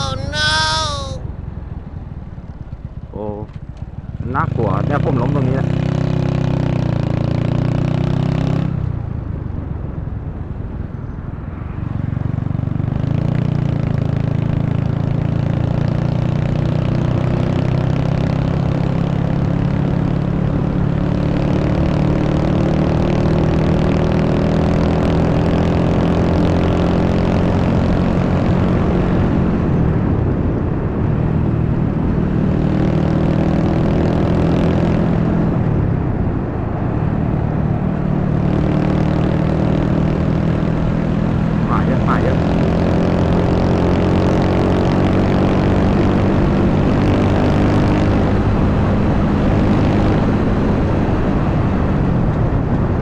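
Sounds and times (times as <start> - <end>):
motorcycle engine running: 0.0 - 9.8, 38.2 - 51.2.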